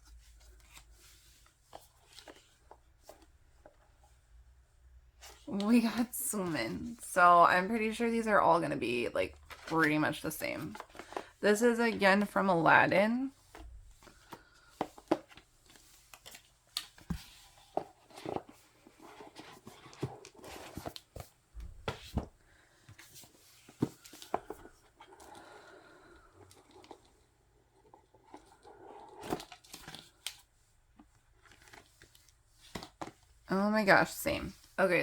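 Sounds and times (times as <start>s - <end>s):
card and paper rustling: 0.0s - 4.1s, 8.9s - 12.6s, 13.3s - 34.8s.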